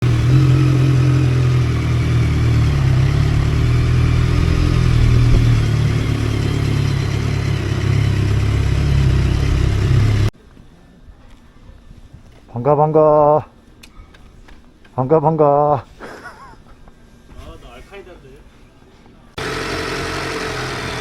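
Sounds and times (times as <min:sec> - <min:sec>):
motorcycle engine running: 0:00.0 - 0:10.3
wind and road noise: 0:00.0 - 0:10.3.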